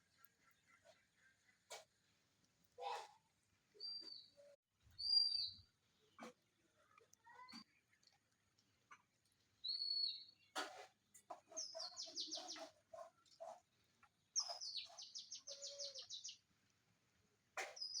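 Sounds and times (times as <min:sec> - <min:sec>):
bird chirping: 0:03.8 - 0:05.6, 0:09.6 - 0:10.6, 0:11.5 - 0:13.6, 0:14.3 - 0:16.4, 0:17.8 - 0:18.0.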